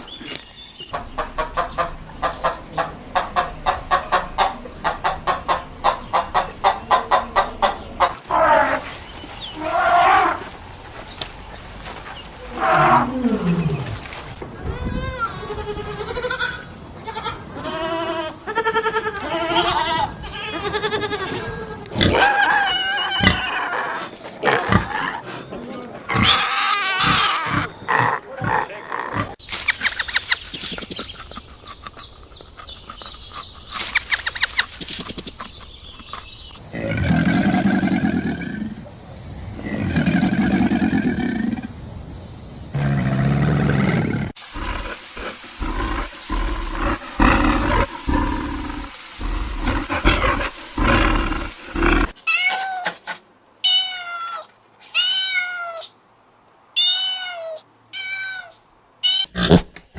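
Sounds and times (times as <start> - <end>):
rapid clicking rattling animal call: 29.5 - 36.6
cat meowing: 56.8 - 59.3.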